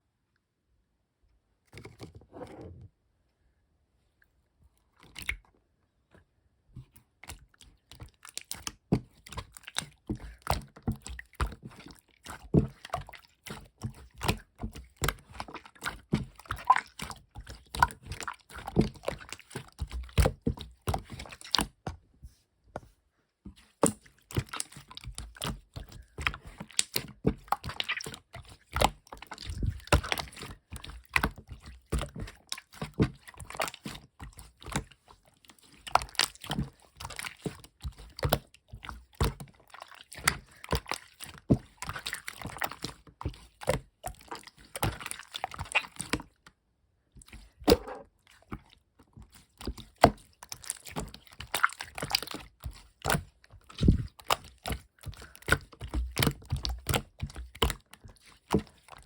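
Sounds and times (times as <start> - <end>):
slime squished by hand: 47.2 - 59.0.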